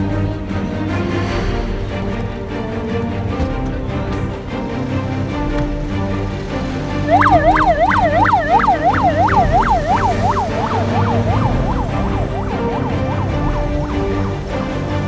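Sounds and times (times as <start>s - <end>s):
background music: 0.0s - 15.0s
siren yelping: 7.1s - 15.0s.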